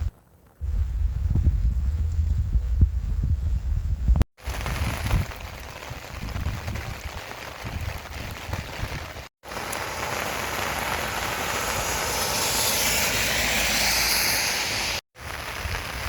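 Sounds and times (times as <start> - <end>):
wind rumbling on microphone: 0.0 - 16.0
rain hiss: 4.4 - 16.0.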